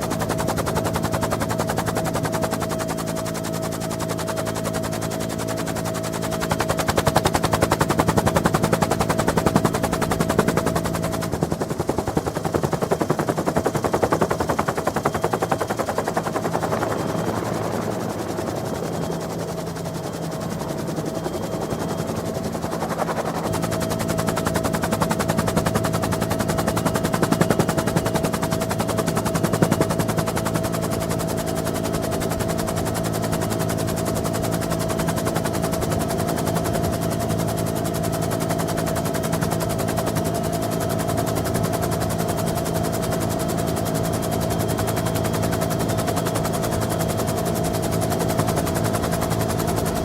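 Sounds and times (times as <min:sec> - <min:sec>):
helicopter rotor blade chop: 0:00.0 - 0:50.0
turbine whine and engine drone: 0:00.0 - 0:50.0.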